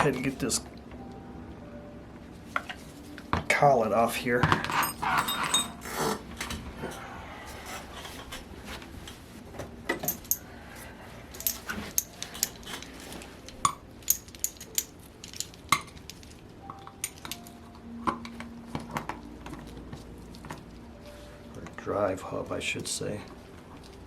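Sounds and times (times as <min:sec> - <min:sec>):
metal tools clinking and tapping: 0:04.4 - 0:07.0, 0:09.9 - 0:10.5, 0:11.3 - 0:19.7.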